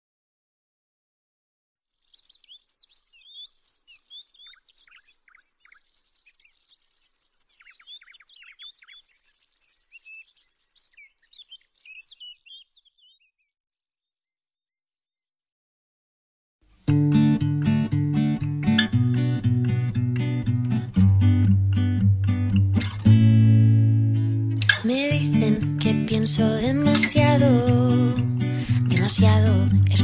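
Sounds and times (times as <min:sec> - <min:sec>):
faint outdoor hiss: 0:01.9 - 0:12.9, 0:16.6 - 0:30.0
songbirds chirping and singing: 0:02.0 - 0:13.9, 0:24.6 - 0:30.0.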